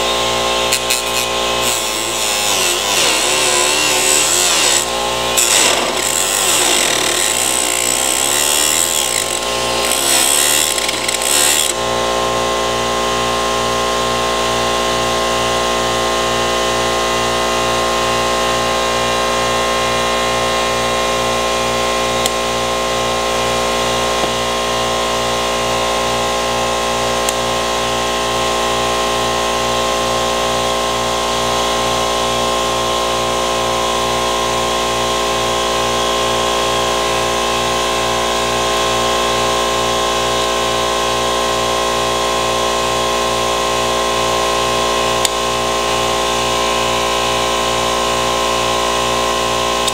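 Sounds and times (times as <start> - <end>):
power tool running: 0.0 - 13.0.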